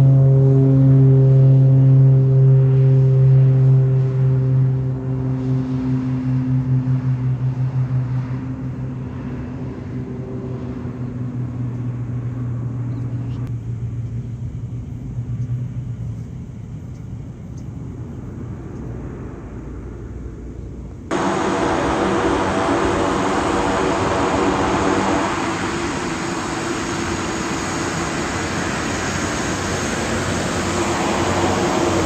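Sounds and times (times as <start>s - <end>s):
jet engines humming: 0.0s - 32.0s
loud rushing noise: 21.1s - 32.0s.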